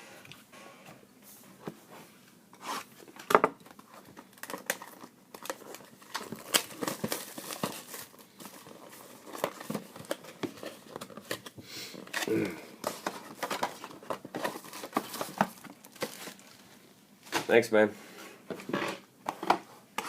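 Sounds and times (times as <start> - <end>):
plastic wrapping crinkling and tearing: 3.8 - 12.2, 12.9 - 16.8.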